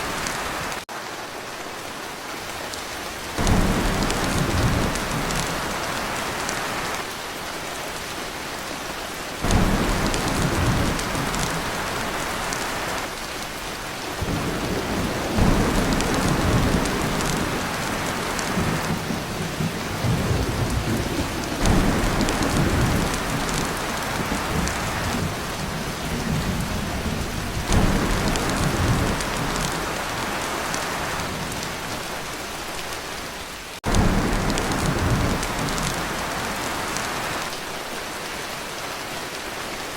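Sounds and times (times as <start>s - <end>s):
heavy rain on a tin roof: 0.0s - 39.9s
thunder rolls: 3.4s - 6.7s, 9.4s - 12.9s, 14.2s - 32.0s, 33.8s - 37.1s.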